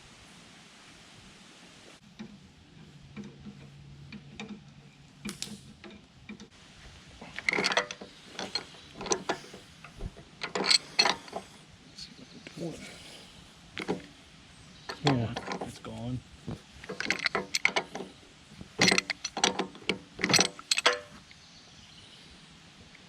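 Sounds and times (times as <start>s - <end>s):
loud clanks: 7.2s - 11.6s, 16.6s - 21.2s
mechanical clicks and rattles: 7.3s - 11.4s, 16.8s - 18.1s, 18.7s - 21.1s.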